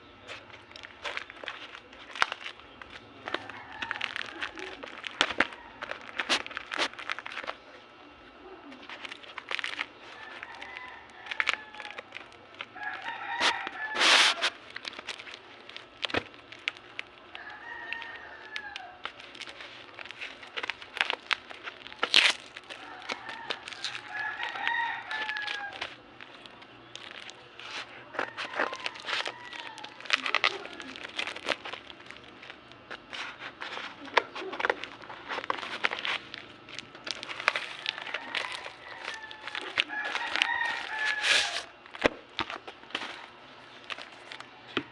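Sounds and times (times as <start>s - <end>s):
handling clicks and rustles: 0.0s - 44.9s
rooster crowing: 3.2s - 6.9s, 10.0s - 14.6s, 17.3s - 19.4s, 22.6s - 31.7s, 37.1s - 41.8s.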